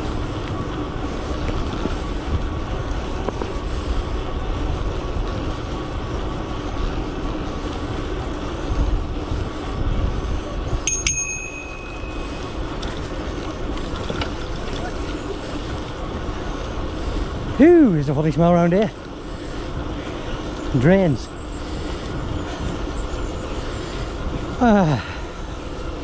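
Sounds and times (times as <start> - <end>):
electric bike riding noise: 0.0 - 26.0
wind rumble on microphone: 0.0 - 26.0
bicycle bell ringing: 10.8 - 13.4.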